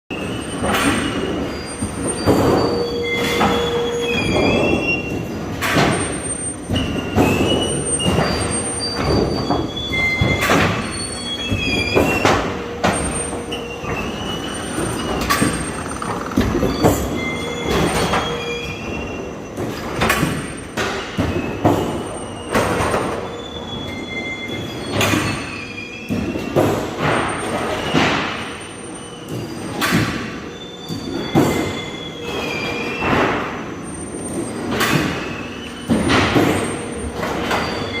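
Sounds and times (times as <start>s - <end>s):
metal rubbing squeals: 13.6s - 18.8s
production machine running: 15.0s - 17.6s.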